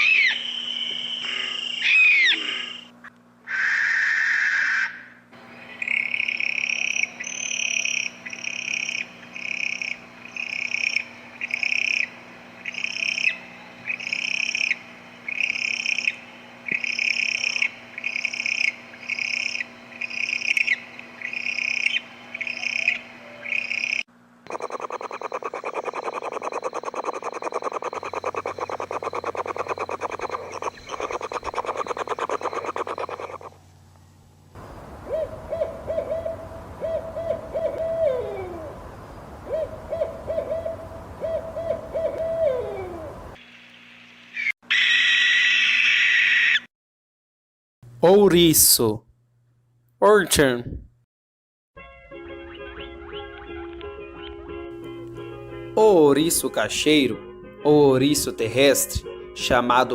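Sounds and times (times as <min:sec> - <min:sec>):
owl rattling trill: 0:00.0 - 0:02.4, 0:23.6 - 0:33.6, 0:44.7 - 0:46.7
owl calling short high notes: 0:00.0 - 0:02.9, 0:03.5 - 0:05.2, 0:44.7 - 0:46.7.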